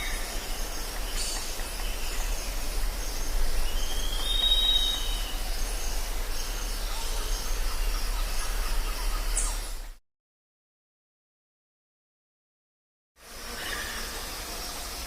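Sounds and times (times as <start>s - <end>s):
insect chorus: 0.0s - 10.0s, 13.2s - 15.0s
long rising whistled call: 3.6s - 5.6s.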